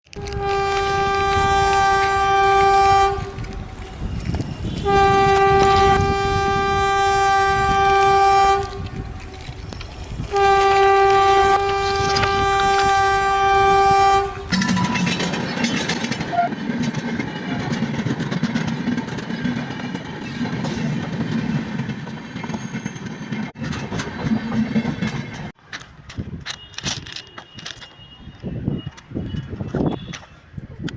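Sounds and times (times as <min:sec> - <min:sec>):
train horn blasts: 0:00.1 - 0:09.4, 0:10.3 - 0:14.7, 0:16.3 - 0:16.5
train wheels clattering on rails: 0:14.4 - 0:28.0.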